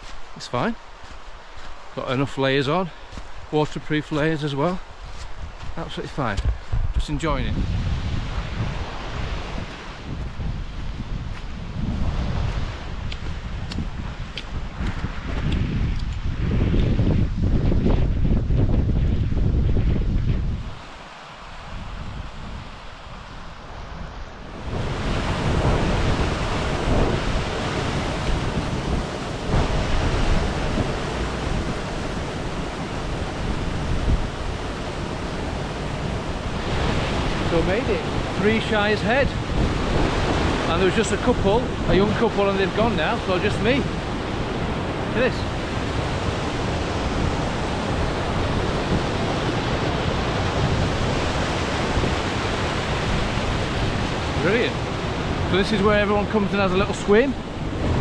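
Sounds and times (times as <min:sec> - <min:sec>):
wind buffeting microphone: 0:04.1 - 0:58.0
stream waterfalls rushing: 0:24.4 - 0:58.0.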